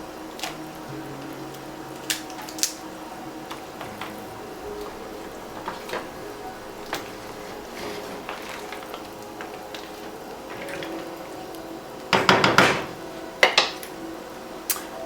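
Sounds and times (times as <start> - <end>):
cookware scraping clatter: 3.8 - 11.2
sharp knocks: 12.2 - 13.8.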